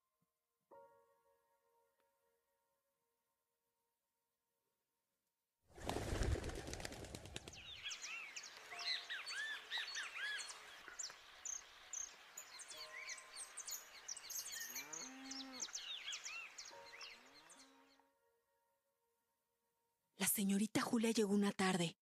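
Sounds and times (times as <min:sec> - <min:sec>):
small birds chirping: 0:06.7 - 0:18.0
cow mooing: 0:14.8 - 0:15.8.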